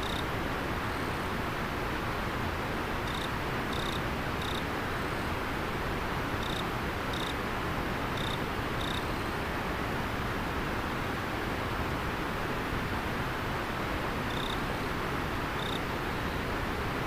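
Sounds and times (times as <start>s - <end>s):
insect chirping: 0.0s - 0.2s, 3.1s - 4.6s, 6.4s - 7.3s, 8.2s - 9.0s, 14.3s - 14.6s, 15.6s - 16.4s.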